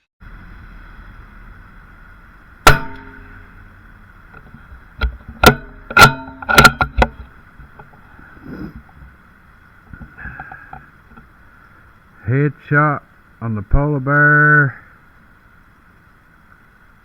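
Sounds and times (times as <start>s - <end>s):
rifle shot: 2.6s - 3.4s.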